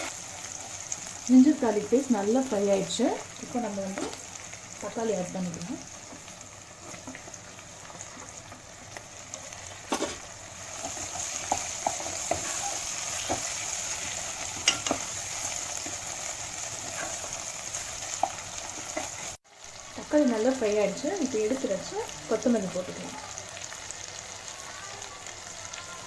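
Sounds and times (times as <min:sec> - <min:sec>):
food sizzling in a pan: 0:00.0 - 0:26.0
spoon stirring and tapping pan: 0:06.0 - 0:19.4.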